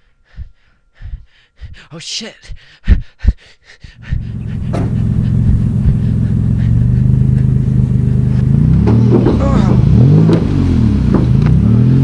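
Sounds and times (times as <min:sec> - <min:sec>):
car engine running: 0:04.0 - 0:12.0.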